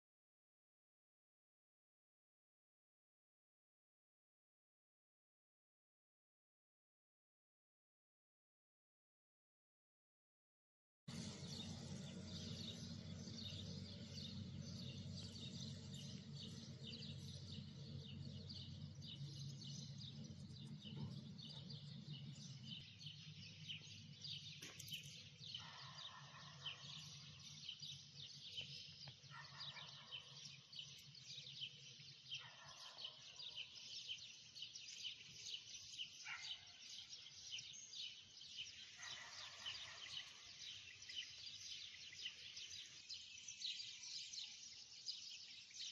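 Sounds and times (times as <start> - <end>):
low hum: 11.1 - 25.3
small birds chirping: 11.1 - 45.9.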